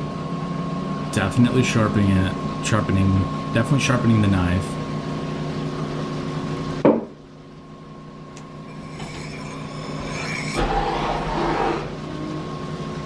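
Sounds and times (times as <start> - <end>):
sharp knock: 6.8 - 7.2
sharpening wheel humming: 8.4 - 10.6
knife blade grinding: 8.5 - 10.6.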